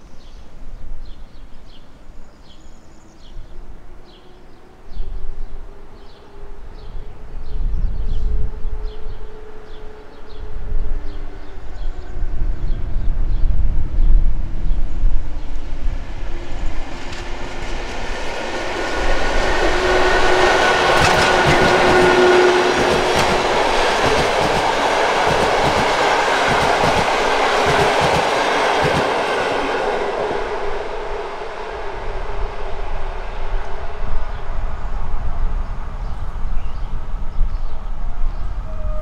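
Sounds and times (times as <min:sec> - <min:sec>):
train wheels clattering over rails: 0:17.0 - 0:29.7.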